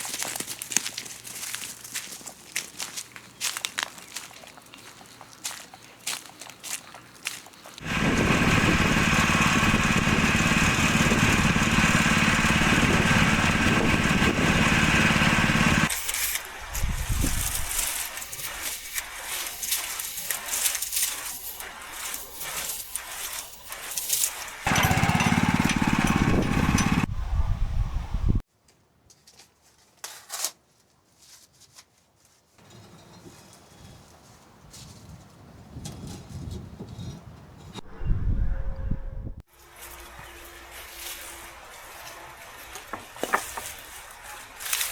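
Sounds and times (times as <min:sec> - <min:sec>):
small petrol engine running: 0:07.8 - 0:16.4, 0:19.7 - 0:27.1.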